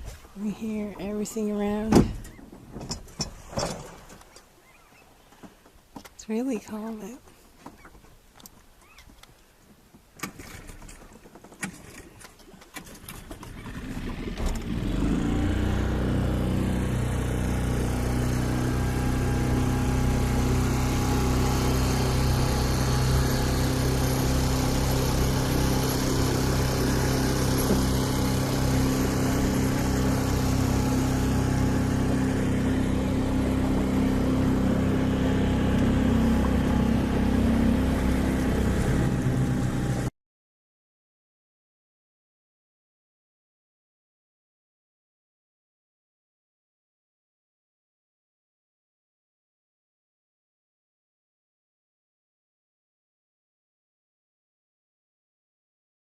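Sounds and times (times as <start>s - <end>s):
water noise: 0.0s - 9.0s, 10.1s - 40.1s
wind: 0.0s - 40.1s
boat motor running: 10.4s - 40.1s.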